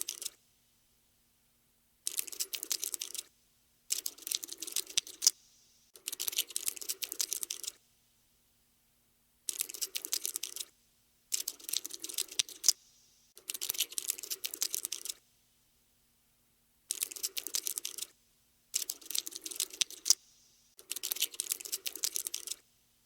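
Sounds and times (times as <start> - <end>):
cockroach scuttling clicks: 0.0 - 0.4, 2.1 - 3.3, 3.9 - 5.4, 6.0 - 7.8, 9.5 - 10.7, 11.3 - 12.8, 13.4 - 15.2, 16.9 - 18.1, 18.8 - 20.2, 20.8 - 22.6.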